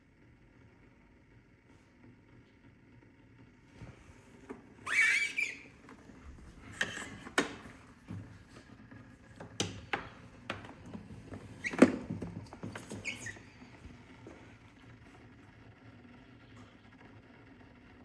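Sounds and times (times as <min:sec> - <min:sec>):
short squeak: 0:04.8 - 0:05.7, 0:12.7 - 0:13.6.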